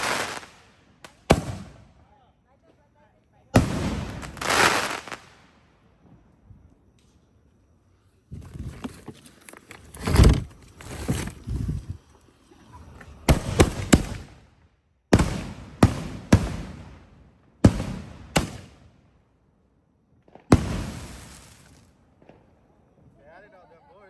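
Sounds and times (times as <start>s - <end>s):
fireworks bangs: 0.0s - 7.2s, 13.0s - 19.3s, 20.2s - 24.0s.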